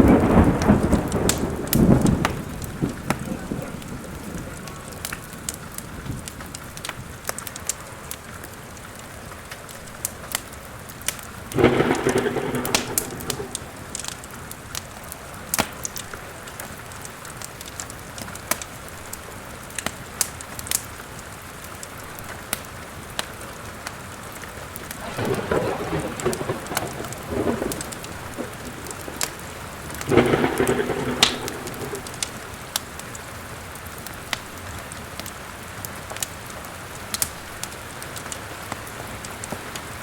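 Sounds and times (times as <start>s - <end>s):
thunder rumble: 0.0s - 7.2s, 11.3s - 17.2s, 24.7s - 34.4s
steady rain: 0.0s - 40.0s
wood fire crackling: 0.0s - 40.0s.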